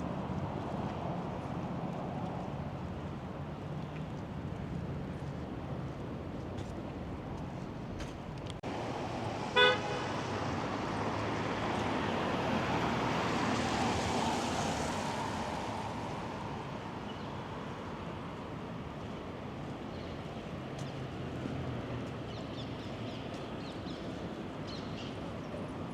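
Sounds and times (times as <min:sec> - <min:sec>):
road traffic: 0:00.0 - 0:25.9
car horn toot: 0:09.6 - 0:10.1.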